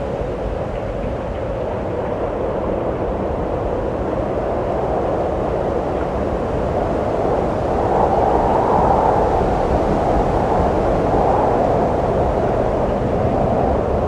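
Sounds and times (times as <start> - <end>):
wind blowing: 2.4 - 14.0.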